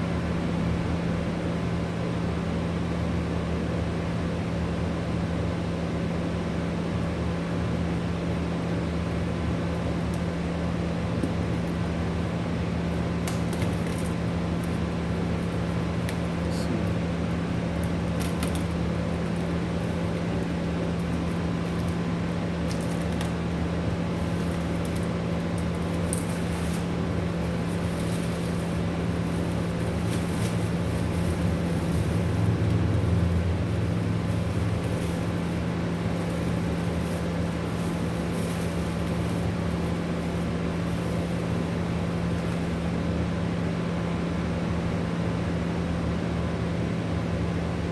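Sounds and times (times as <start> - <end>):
mechanical hum: 0.0 - 47.9.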